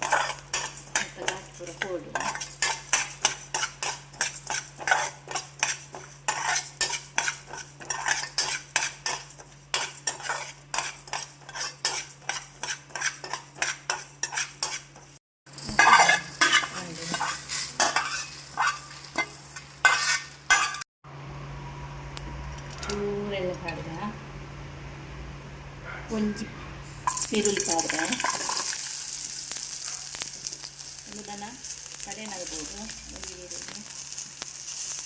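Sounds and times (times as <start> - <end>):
spoon stirring spices in a pan: 0.0 - 20.8, 27.1 - 35.0
faint sizzle: 27.1 - 35.0.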